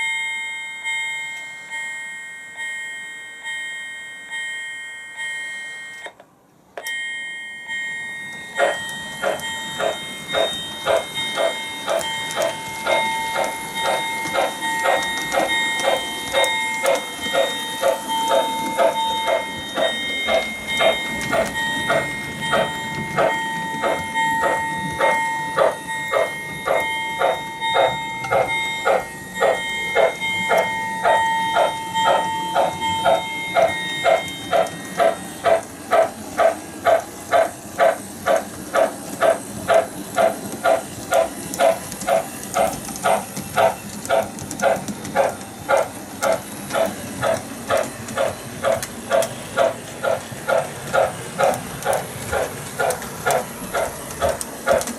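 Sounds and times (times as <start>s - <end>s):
steady high tone: 6.8s - 38.3s
model locomotive steam chuff: 8.6s - 54.9s.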